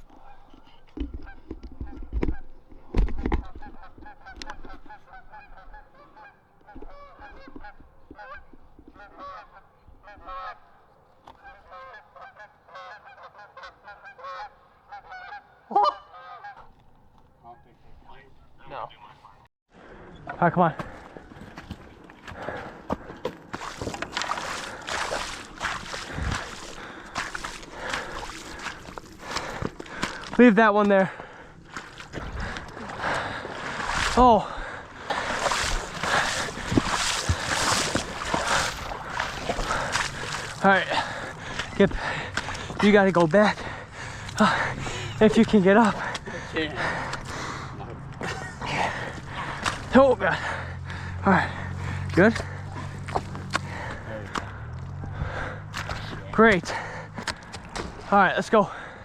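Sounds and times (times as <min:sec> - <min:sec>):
footsteps wading through water: 0:00.0 - 0:13.0, 0:20.8 - 0:30.4, 0:31.0 - 0:58.1
geese honking: 0:03.2 - 0:19.4, 0:34.9 - 0:48.0.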